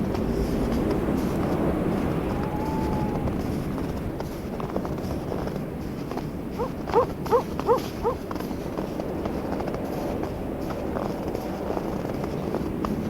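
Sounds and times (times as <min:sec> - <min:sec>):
animal calls rising in pitch: 0:02.1 - 0:03.6, 0:06.6 - 0:08.2.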